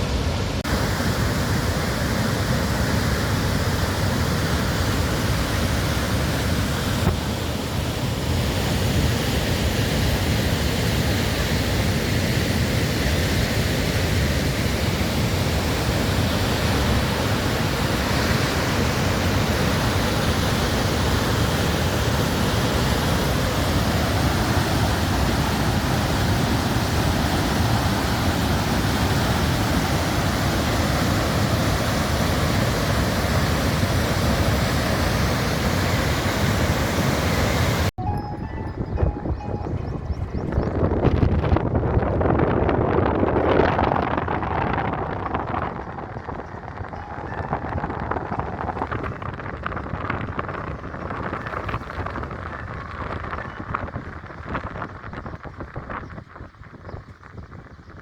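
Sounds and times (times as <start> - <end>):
waterfall roaring: 0.0 - 40.4.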